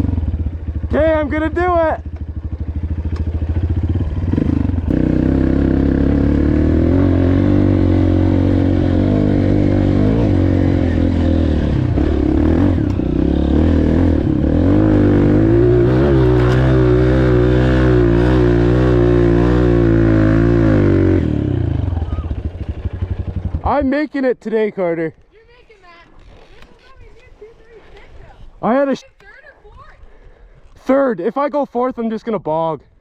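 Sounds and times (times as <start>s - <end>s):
dirt bike engine revving: 0.0s - 23.9s.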